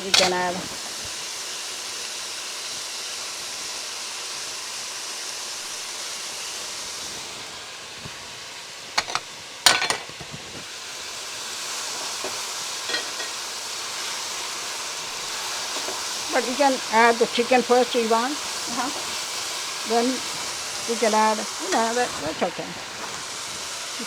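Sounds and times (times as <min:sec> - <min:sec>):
vegetables sizzling in a pan: 0:00.0 - 0:24.0
utensil clacking against pan: 0:09.0 - 0:10.2, 0:12.2 - 0:13.4.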